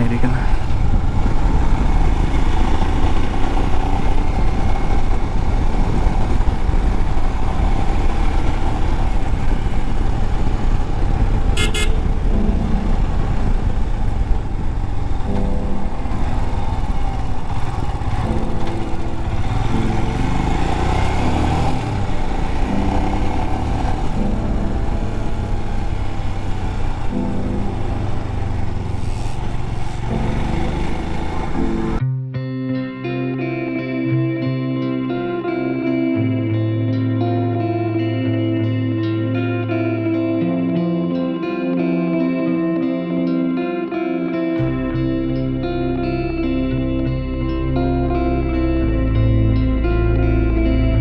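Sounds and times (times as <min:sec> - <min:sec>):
motorcycle engine running: 0:00.0 - 0:32.0
wind noise on microphone: 0:00.4 - 0:31.9
horn beep: 0:11.4 - 0:13.4.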